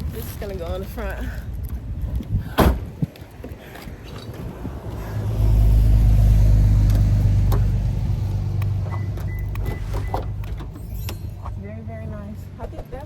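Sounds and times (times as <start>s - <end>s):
car engine humming: 3.5s - 13.0s.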